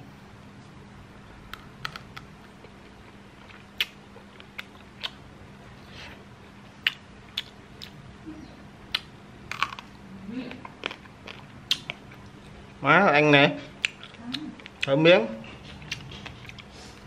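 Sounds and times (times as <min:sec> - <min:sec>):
faint steady hum: 0:00.0 - 0:17.0
man chewing meat: 0:01.8 - 0:08.1, 0:08.9 - 0:12.7, 0:13.7 - 0:17.0.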